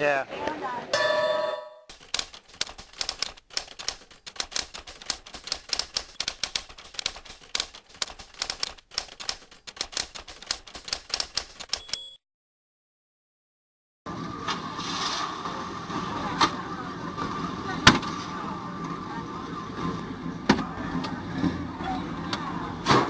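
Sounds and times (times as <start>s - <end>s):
typewriter keys clattering: 1.9s - 12.0s.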